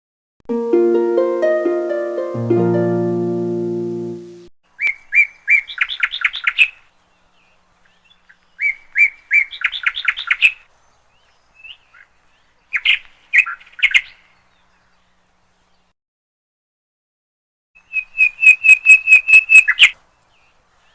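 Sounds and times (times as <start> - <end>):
songbird singing: 1.0 - 15.9, 17.8 - 20.9
bird calls: 4.8 - 15.9, 17.8 - 20.9.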